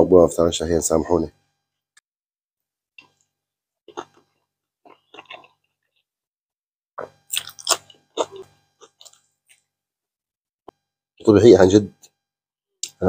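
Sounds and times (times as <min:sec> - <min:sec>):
crunchy chewing: 0:03.9 - 0:06.1, 0:07.0 - 0:09.6.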